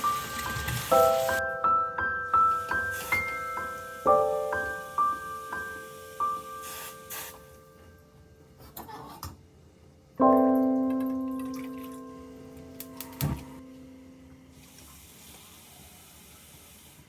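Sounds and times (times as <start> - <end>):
faint hiss: 0.0 - 1.5, 2.2 - 7.7, 14.5 - 17.0.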